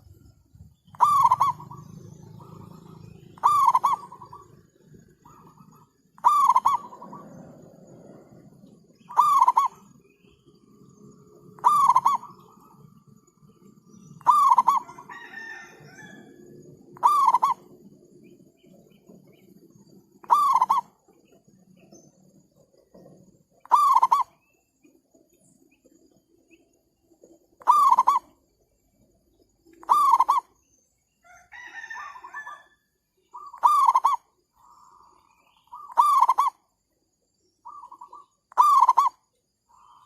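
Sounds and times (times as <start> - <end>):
faint background bird calls: 0.0 - 40.0
loud bird call: 0.9 - 7.6, 9.0 - 10.2, 11.5 - 12.8, 14.1 - 17.8, 20.2 - 21.0, 23.6 - 24.4, 29.8 - 30.5, 33.3 - 36.6, 37.6 - 40.0.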